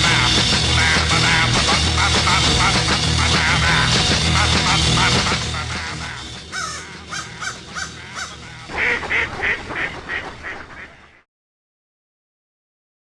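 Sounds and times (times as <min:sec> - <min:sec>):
bird honking calls: 0:06.4 - 0:11.1.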